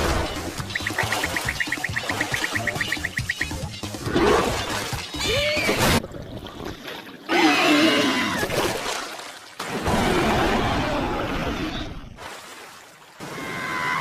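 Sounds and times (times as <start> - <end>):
cartoon music: 0.1 - 6.0.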